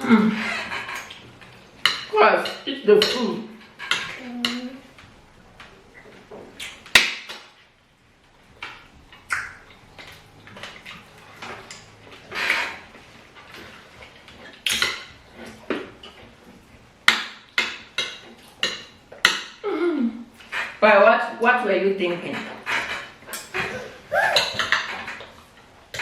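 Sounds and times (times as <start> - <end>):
cutlery clinking on plates: 0.1 - 4.7, 13.4 - 16.3, 17.1 - 19.6, 24.4 - 26.0.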